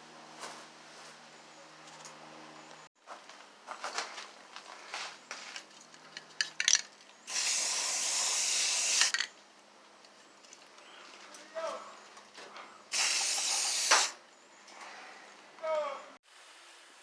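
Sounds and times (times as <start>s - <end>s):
welder hissing: 7.3s - 9.2s, 12.9s - 14.2s.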